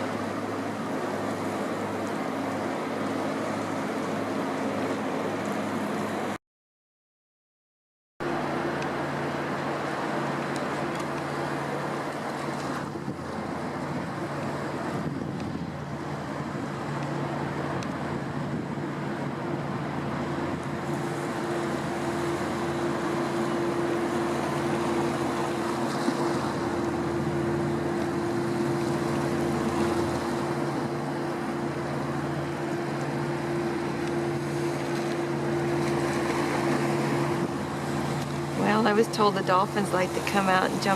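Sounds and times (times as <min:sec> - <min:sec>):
boat engine drone: 0:00.0 - 0:06.4, 0:08.2 - 0:40.9
wind: 0:00.0 - 0:06.4, 0:08.2 - 0:40.9
water washing: 0:20.9 - 0:40.9.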